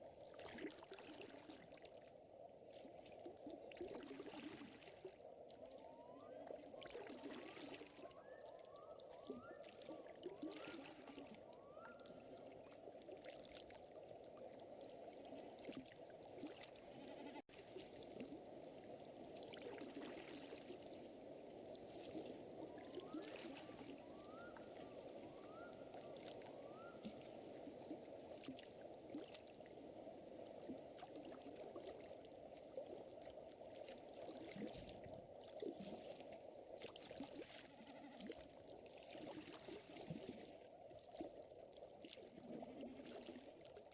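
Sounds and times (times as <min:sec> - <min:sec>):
running water: 0:02.7 - 0:43.9.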